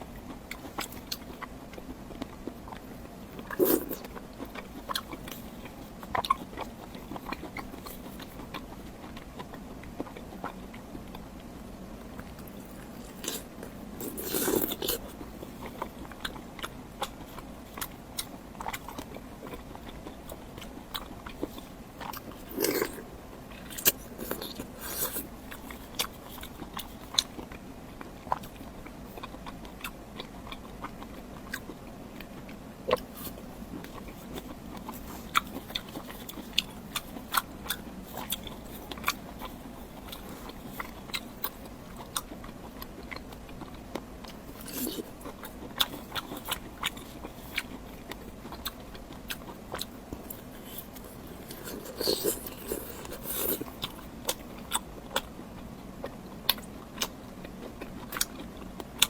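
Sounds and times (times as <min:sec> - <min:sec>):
person biting and chewing food: 0:00.2 - 0:11.2, 0:12.0 - 0:27.6, 0:28.2 - 0:55.3, 0:56.5 - 0:59.0.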